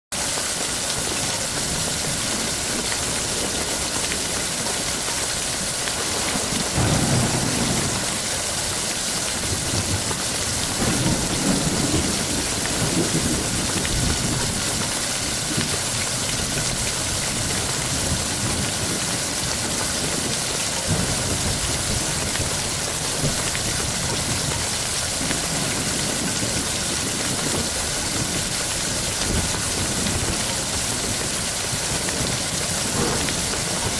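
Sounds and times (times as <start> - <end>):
heavy rain: 0.2 - 33.9
thunder rumbling: 5.8 - 14.6.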